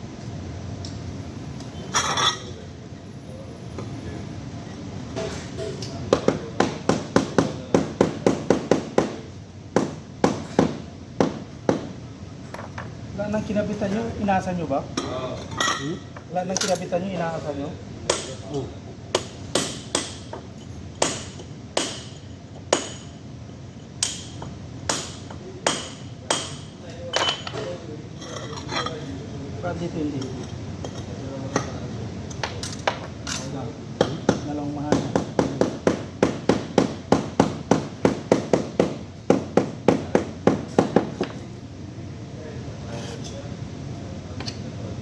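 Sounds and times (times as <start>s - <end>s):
hammer striking metal: 19.2s - 20.3s, 21.0s - 23.1s, 24.0s - 27.4s.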